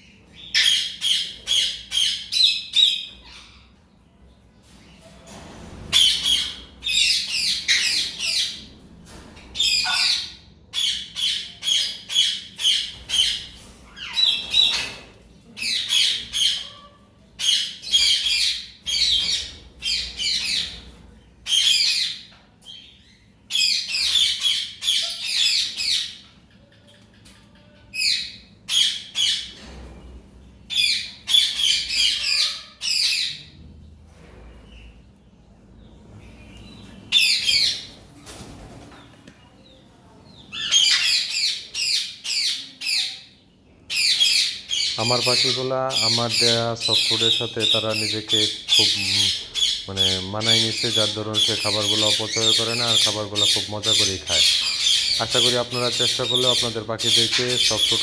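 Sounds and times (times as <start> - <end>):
parrots squawking: 9.6 - 14.9, 15.6 - 20.8, 21.4 - 22.9, 23.5 - 26.3, 30.7 - 33.4, 37.1 - 38.0, 40.5 - 43.3, 43.9 - 58.0.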